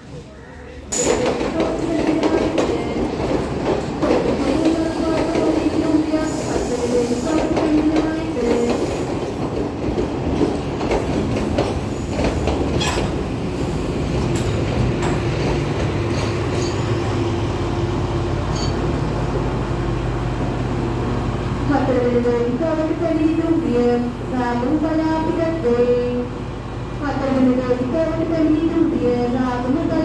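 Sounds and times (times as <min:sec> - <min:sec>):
train wheels clicking over rail joints: 0:00.9 - 0:17.2
train wheels squealing: 0:16.4 - 0:17.1, 0:18.5 - 0:18.9.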